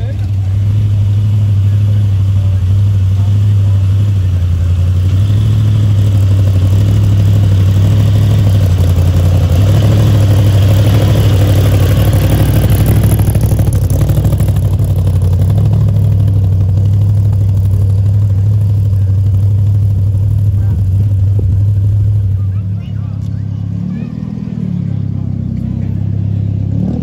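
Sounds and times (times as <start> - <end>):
supercharged car engine running: 0.0 - 27.0.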